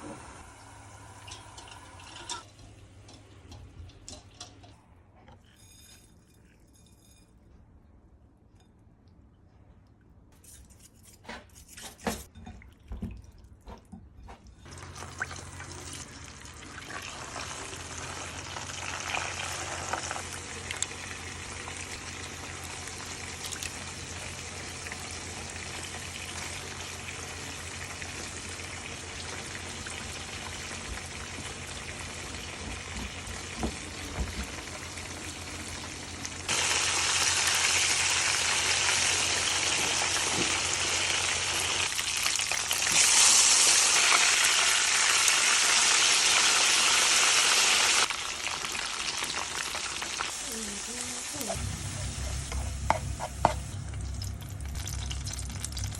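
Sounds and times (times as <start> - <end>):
food sizzling in hot oil: 0.0 - 4.5, 14.6 - 55.9
kitchenware clinking: 1.1 - 7.6, 10.4 - 16.1
steady hiss with low hum: 50.2 - 55.9.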